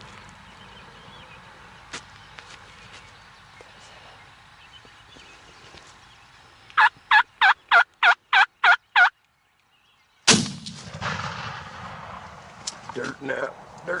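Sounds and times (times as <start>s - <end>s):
turkey yelps: 6.8s - 9.1s
shotgun blast: 10.3s - 12.4s.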